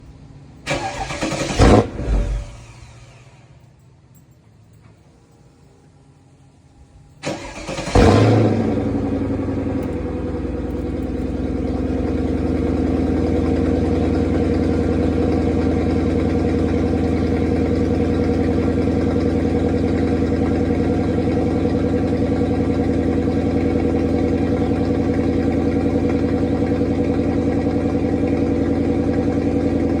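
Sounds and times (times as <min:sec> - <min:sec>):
car engine starting and idling: 0:00.0 - 0:04.7, 0:06.8 - 0:30.0
starter motor cranking: 0:00.7 - 0:02.7, 0:07.2 - 0:08.5.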